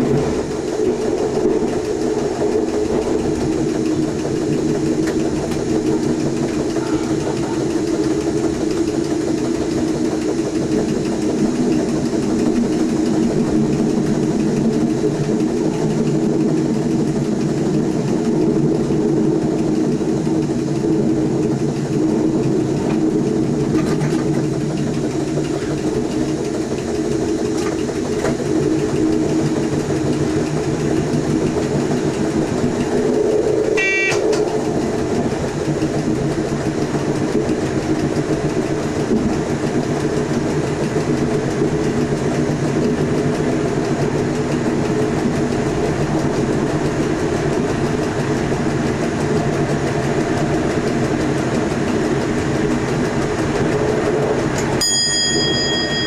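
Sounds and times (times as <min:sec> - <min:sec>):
electric train hum and rumble: 0:00.0 - 0:56.0.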